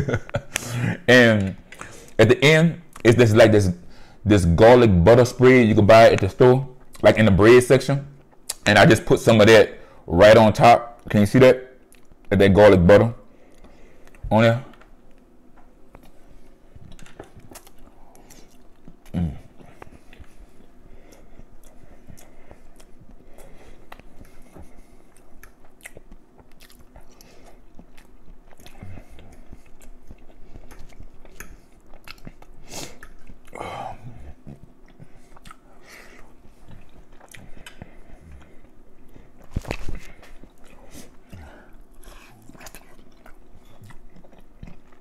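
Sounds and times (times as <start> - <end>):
man chewing food: 2.9 - 3.1, 6.8 - 7.1, 8.1 - 8.6, 11.8 - 12.3, 13.3 - 45.0.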